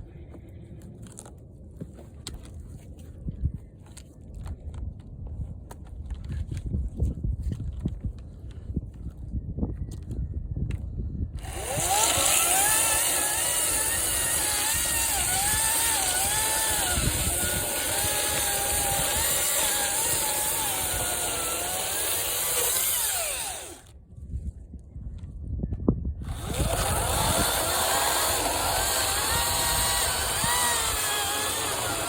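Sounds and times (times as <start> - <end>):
chainsaw cutting wood: 11.4 - 23.9, 26.2 - 32.0
low rumbling: 26.1 - 32.0.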